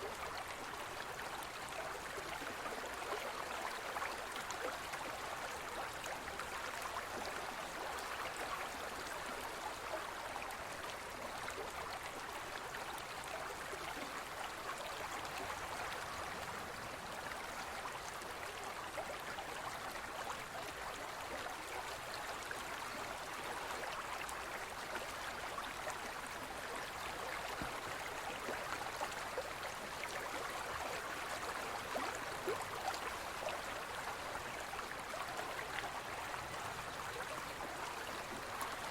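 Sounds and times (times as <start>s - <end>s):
stream flowing with splashes: 0.0s - 38.9s.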